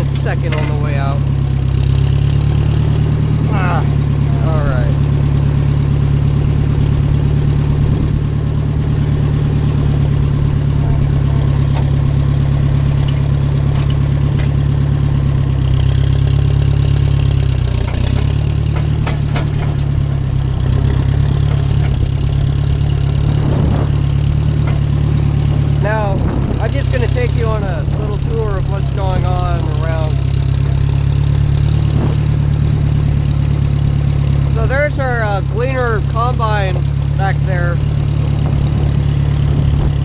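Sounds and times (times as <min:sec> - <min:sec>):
tractor engine running: 0:00.0 - 0:40.0
clicks and rattles: 0:00.1 - 0:01.0, 0:13.0 - 0:14.6, 0:17.6 - 0:23.2.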